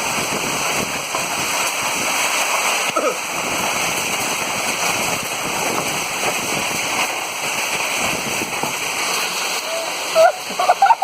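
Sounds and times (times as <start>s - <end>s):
hailstones pelting down: 0.0s - 11.0s.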